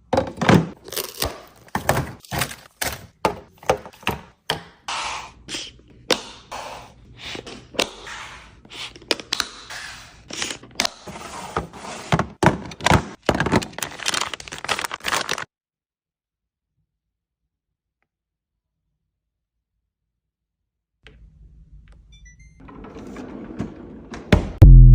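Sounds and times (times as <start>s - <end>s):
containers knocking on shelves: 0.0s - 0.8s, 3.2s - 4.8s, 12.1s - 13.6s
plastic packaging rustling: 12.4s - 15.5s.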